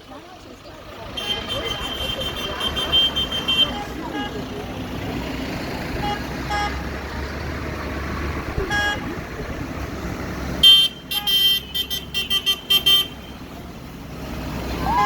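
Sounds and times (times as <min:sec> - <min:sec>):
tractor engines running past: 0:00.0 - 0:15.0
horn blasts: 0:08.6 - 0:09.2.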